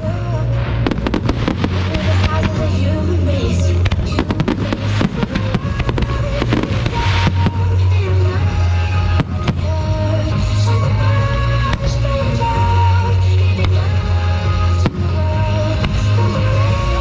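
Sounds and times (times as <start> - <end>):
fireworks bursting and crackling: 0.0 - 17.0
loud music with heavy bass: 0.0 - 17.0.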